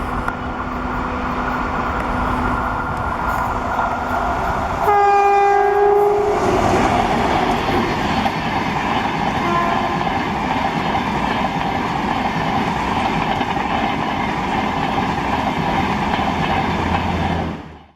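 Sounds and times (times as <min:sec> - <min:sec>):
train coaches rolling on rails: 0:00.0 - 0:17.9
locomotive horn: 0:04.8 - 0:06.9, 0:09.4 - 0:10.2.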